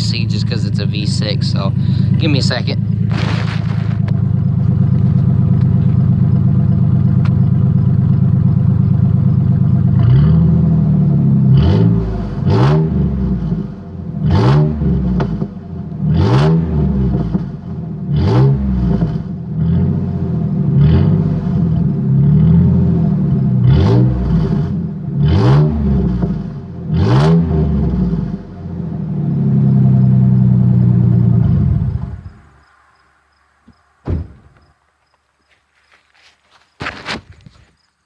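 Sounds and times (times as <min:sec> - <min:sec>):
engine idling and revving: 0:00.0 - 0:32.7.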